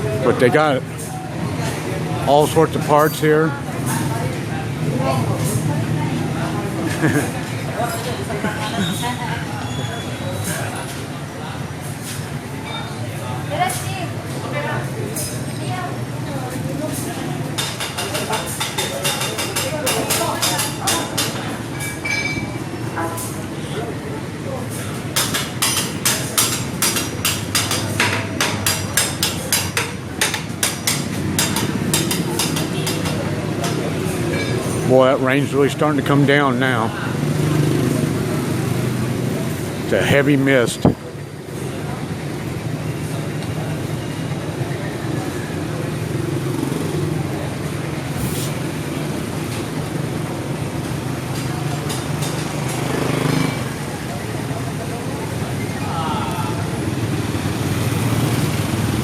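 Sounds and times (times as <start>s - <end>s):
short hisses: 48.1s - 48.8s.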